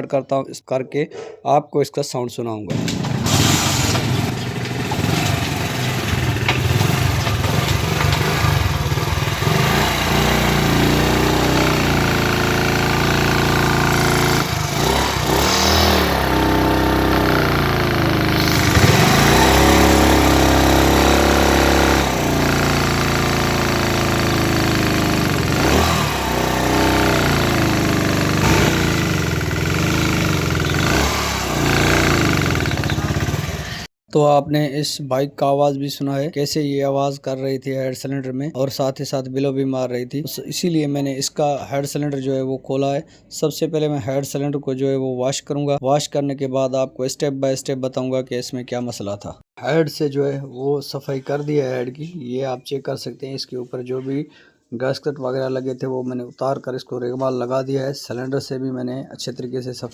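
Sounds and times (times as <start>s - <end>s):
engine knocking: 2.7s - 33.9s
motorcycle engine revving: 2.7s - 33.9s.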